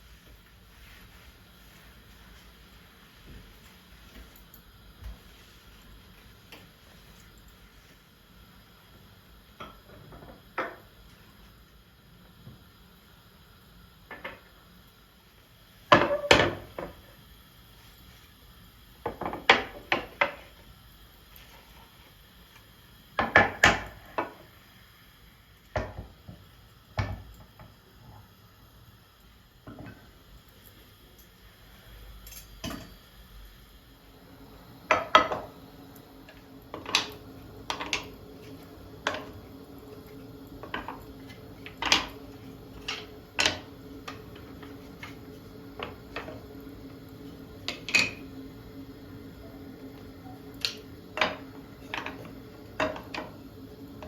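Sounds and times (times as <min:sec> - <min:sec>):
steady low hum: 0:20.5 - 0:54.0.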